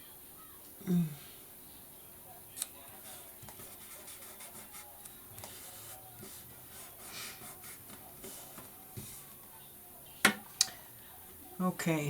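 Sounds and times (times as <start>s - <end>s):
paper rustling and scratching: 2.9s - 9.5s.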